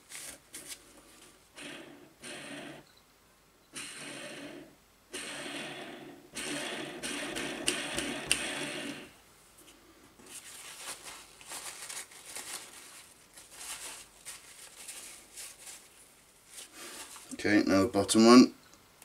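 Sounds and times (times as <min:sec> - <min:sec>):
sharp clicks: 0:06.4 - 0:09.0.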